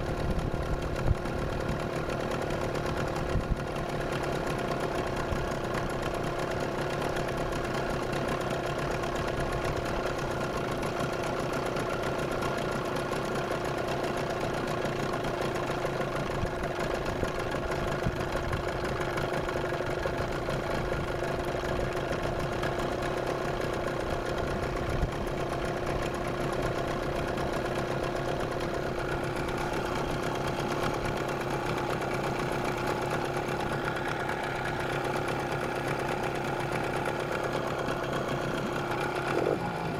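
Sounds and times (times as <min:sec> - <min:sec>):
outboard motor running with whistle: 0:08.9 - 0:39.9.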